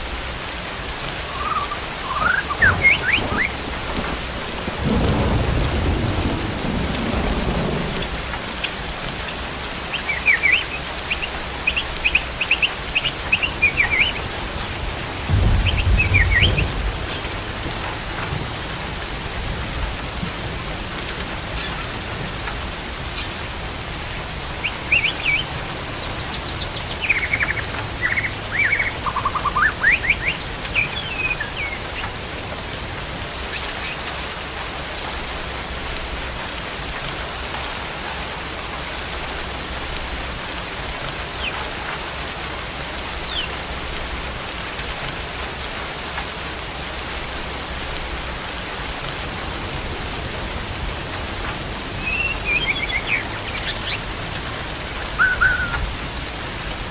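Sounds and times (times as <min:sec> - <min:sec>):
rain hissing: 0:00.0 - 0:56.9
bird whistles and trills: 0:01.2 - 0:03.7, 0:09.9 - 0:14.7, 0:24.6 - 0:32.1, 0:52.0 - 0:54.1, 0:54.8 - 0:55.9.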